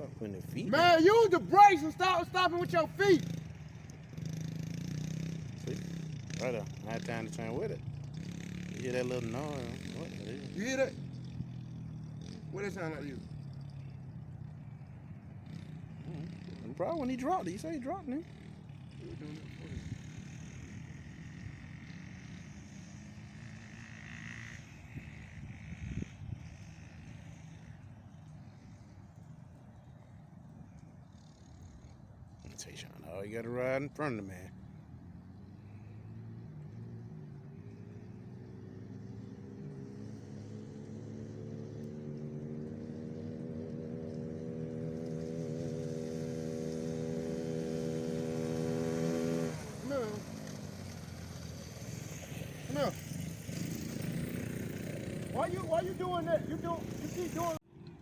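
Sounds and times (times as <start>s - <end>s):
dirt bike engine running: 0.0s - 32.5s, 33.5s - 58.0s.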